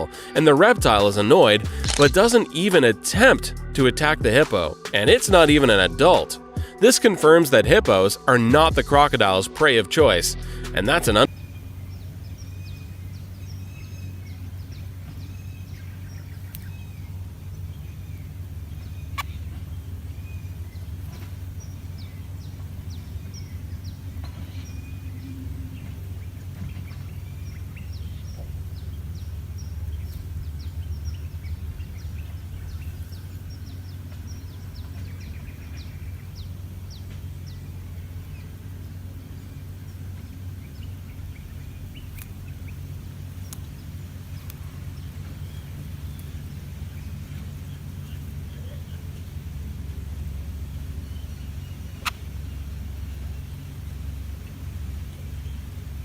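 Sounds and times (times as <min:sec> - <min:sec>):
steady low rumble: 0:00.0 - 0:06.9, 0:07.6 - 0:56.0
birds chirping and calling: 0:00.0 - 0:56.0.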